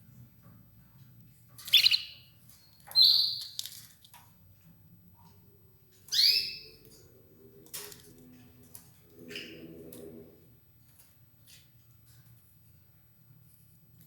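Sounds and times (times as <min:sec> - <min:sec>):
canary chirp calls: 0:01.6 - 0:03.7, 0:06.1 - 0:06.8.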